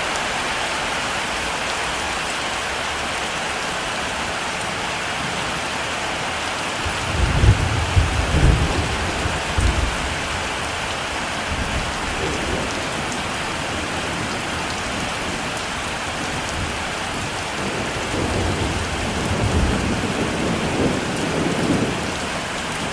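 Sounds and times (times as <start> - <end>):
heavy rain: 0.0 - 22.9
thunder rumbling: 6.8 - 22.9.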